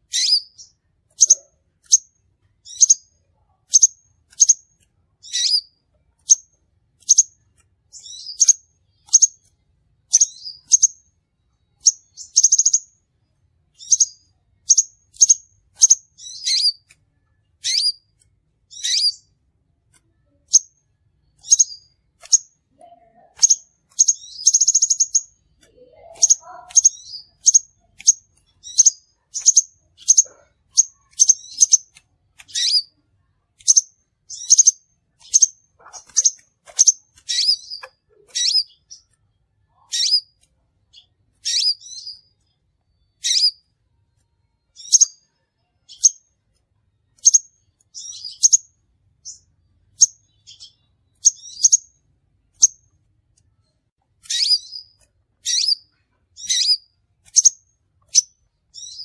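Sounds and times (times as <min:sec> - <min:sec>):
bird chirping: 0:00.0 - 0:59.0.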